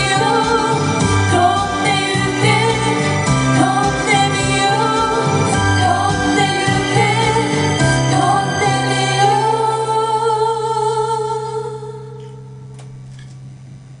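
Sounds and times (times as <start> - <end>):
instrumental backing: 0.0 - 11.0
women singing pop ballad: 0.0 - 12.2.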